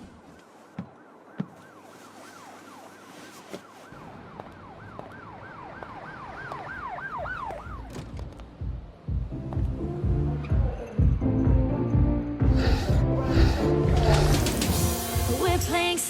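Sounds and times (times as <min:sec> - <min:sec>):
emergency siren yelping: 0:00.8 - 0:07.9.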